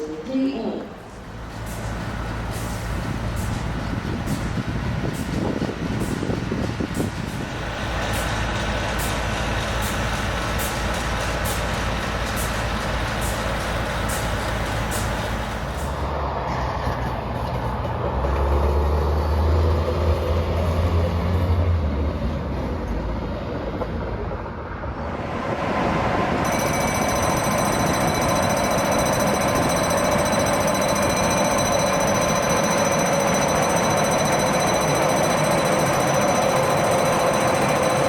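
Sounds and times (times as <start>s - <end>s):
electric locomotives rumbling: 0.0s - 38.0s
machine engine deep drone: 25.0s - 38.0s
high-pitched whines: 25.8s - 38.0s.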